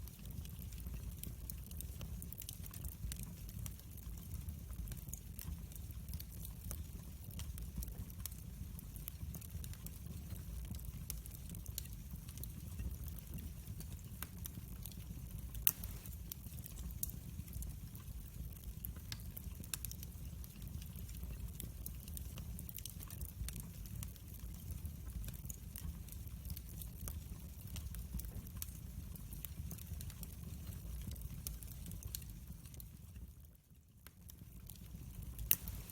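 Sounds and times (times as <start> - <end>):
wood fire crackling and popping: 0.0 - 35.9.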